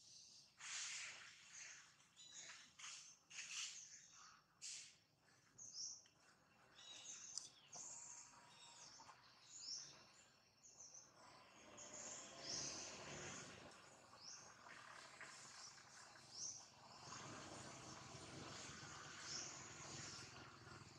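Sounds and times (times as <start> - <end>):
small birds chirping: 0.0 - 20.9.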